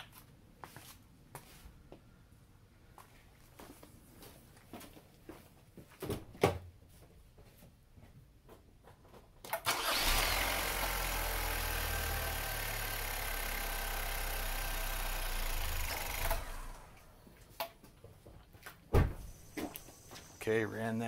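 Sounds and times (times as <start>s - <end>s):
car engine starting and idling: 9.5s - 17.2s.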